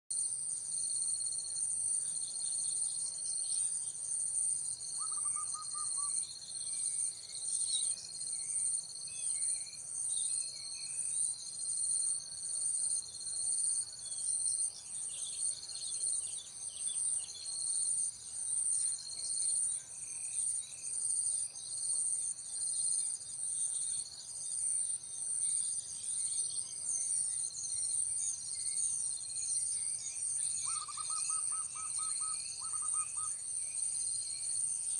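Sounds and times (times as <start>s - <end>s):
high-pitched insect chorus: 0.2s - 34.9s.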